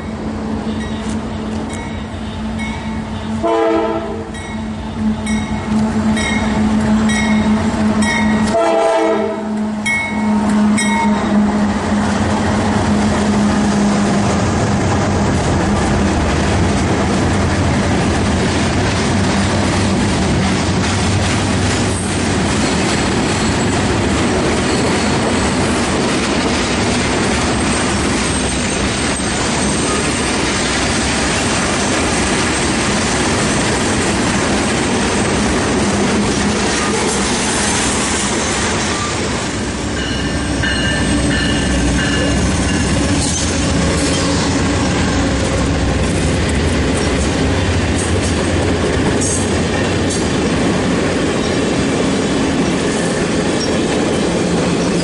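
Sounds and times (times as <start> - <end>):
freight train wheels rumbling: 0.0 - 55.0
passenger train cars passing: 0.0 - 55.0
high wheel squeal: 24.6 - 25.6.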